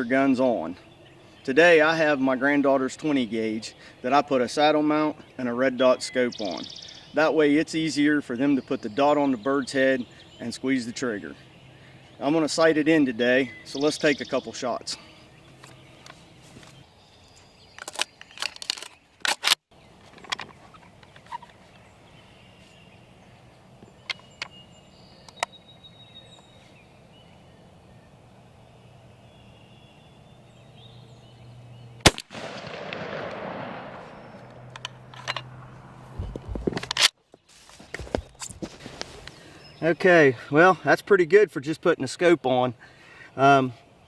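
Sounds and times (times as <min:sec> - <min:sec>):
shotgun shot with rolling echo: 0:32.0 - 0:34.7.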